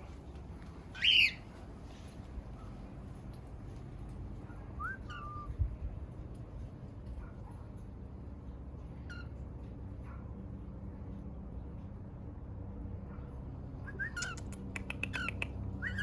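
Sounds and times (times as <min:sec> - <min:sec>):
cockatiel chirping and whistling: 0:01.0 - 0:01.4, 0:04.8 - 0:05.5, 0:13.9 - 0:16.0.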